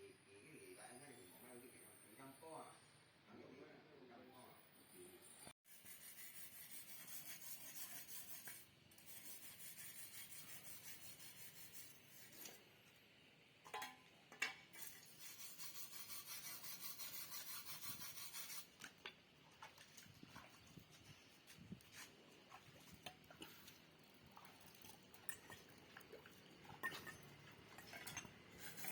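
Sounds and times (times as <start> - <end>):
hand sanding rasping strokes: 5.7 - 12.6, 14.8 - 18.8, 28.5 - 28.9.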